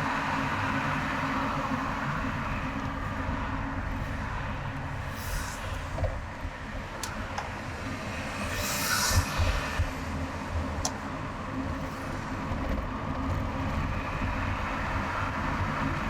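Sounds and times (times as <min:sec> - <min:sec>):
car road and tyre noise: 0:00.0 - 0:16.0
short hiss: 0:08.5 - 0:09.7.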